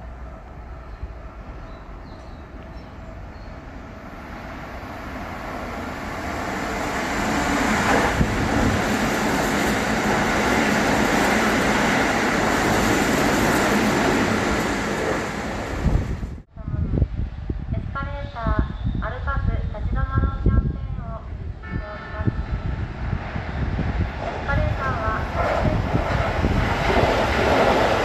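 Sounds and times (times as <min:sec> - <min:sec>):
train wheels rumbling on rails: 0:05.1 - 0:16.4, 0:21.7 - 0:28.0.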